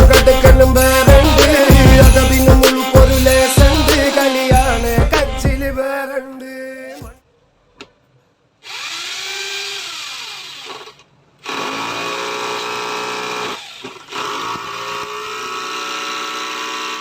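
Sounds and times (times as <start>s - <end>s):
hammer drill motor running: 8.6s - 17.0s.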